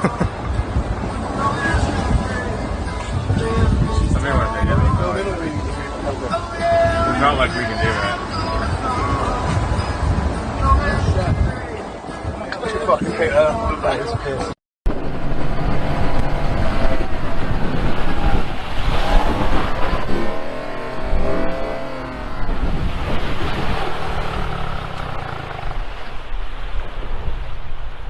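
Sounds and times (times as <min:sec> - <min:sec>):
engine running: 0:14.9 - 0:27.0
steady rushing noise: 0:14.9 - 0:28.0.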